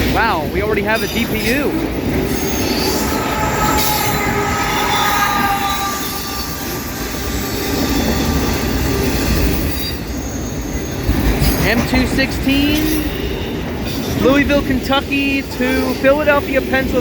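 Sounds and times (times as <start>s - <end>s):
train wheels rumbling on rail: 0.0s - 17.0s
high wheel squeal: 0.9s - 11.7s.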